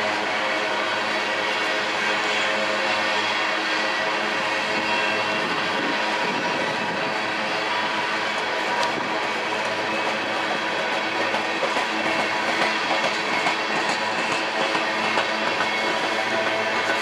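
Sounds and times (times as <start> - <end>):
train wheels on rail: 0.0 - 17.0
rail joint clicks: 7.5 - 17.0.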